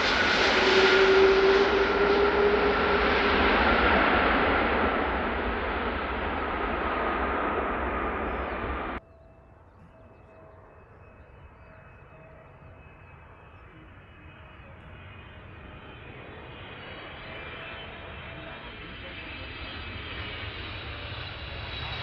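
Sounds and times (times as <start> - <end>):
jet airliner engine whine: 0.0 - 22.0.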